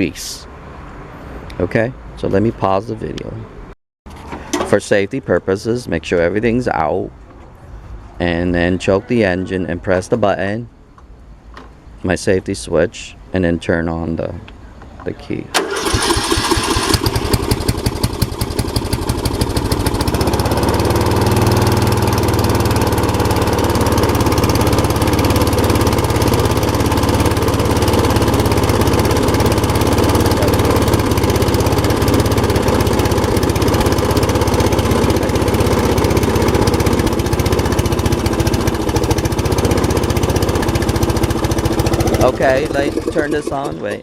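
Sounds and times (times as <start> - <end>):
riding lawn mower engine running: 15.6 - 44.0.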